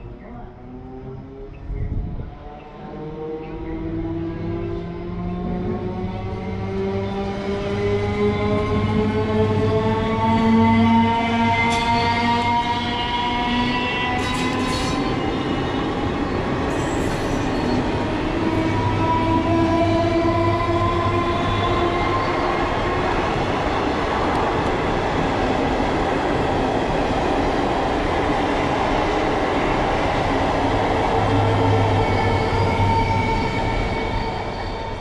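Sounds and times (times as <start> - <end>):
train coaches rolling past: 2.6 - 35.0
train whine rising in pitch: 30.9 - 35.0.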